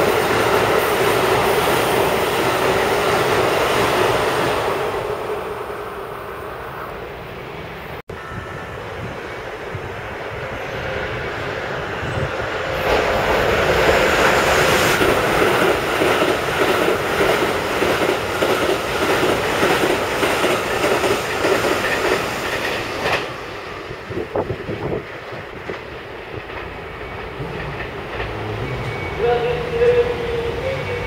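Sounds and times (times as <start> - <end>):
train wheels clattering over rails: 12.7 - 29.1.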